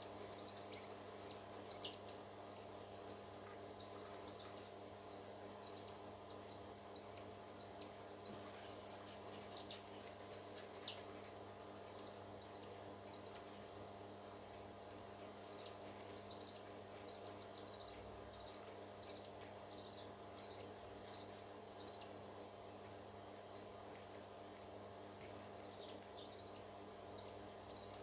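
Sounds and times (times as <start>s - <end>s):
high-pitched bird chirping: 0.0s - 8.5s, 15.0s - 22.1s
faint steady hum: 0.0s - 28.0s.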